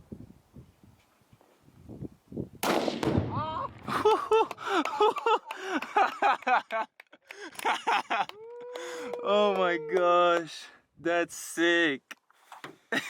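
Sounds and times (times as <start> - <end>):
loud explosive blast: 2.6 - 4.0
people whooping and exclaiming: 3.3 - 6.2, 7.6 - 10.5.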